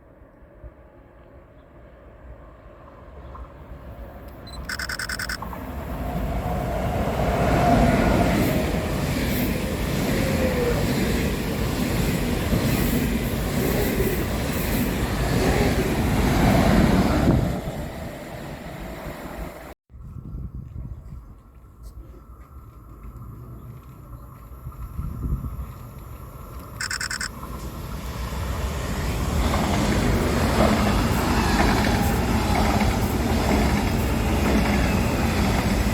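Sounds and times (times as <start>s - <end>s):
train passing at speed: 0.0s - 19.8s, 27.3s - 35.9s.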